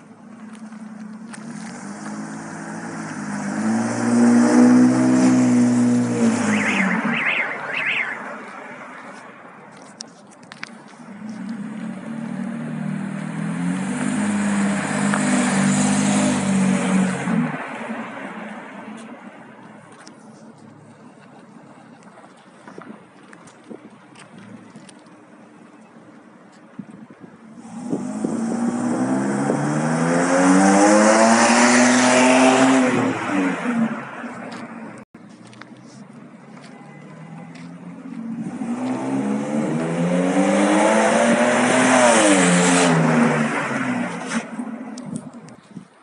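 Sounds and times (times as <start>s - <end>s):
car engine accelerating: 0.4s - 9.2s, 11.0s - 19.2s, 27.6s - 35.6s, 37.6s - 45.3s.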